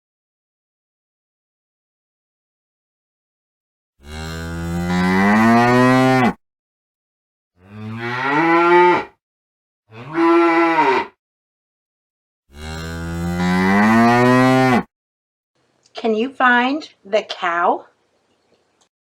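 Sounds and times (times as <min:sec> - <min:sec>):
cow mooing: 0:04.0 - 0:06.4, 0:07.6 - 0:09.2, 0:09.9 - 0:11.2, 0:12.5 - 0:14.9.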